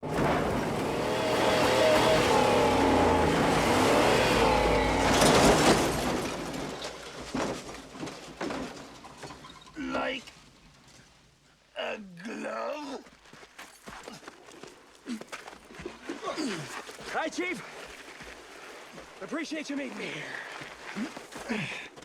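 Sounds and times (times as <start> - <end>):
loud noisy burst: 0.0 - 6.8
vehicle engine revving: 0.0 - 7.3
thumps: 0.0 - 9.8.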